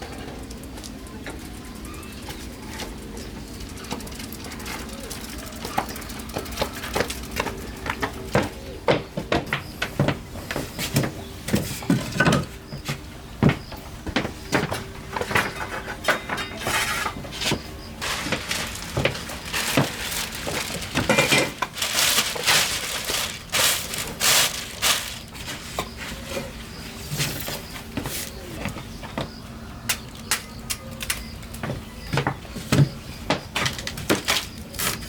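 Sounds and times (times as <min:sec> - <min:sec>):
hard objects clattering: 0:14.6 - 0:26.6.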